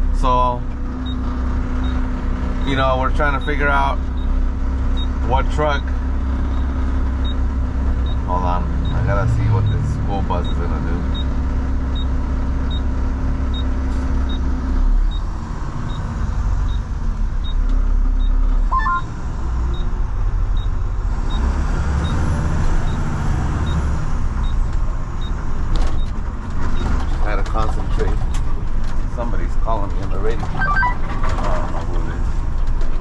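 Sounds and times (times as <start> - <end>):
garbage truck engine rumble: 0.0 - 33.0
two-note rising beep: 18.7 - 19.1.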